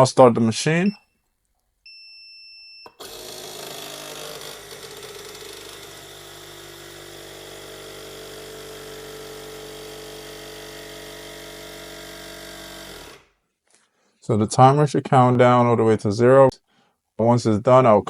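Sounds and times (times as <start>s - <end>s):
compressor humming: 1.9s - 13.2s.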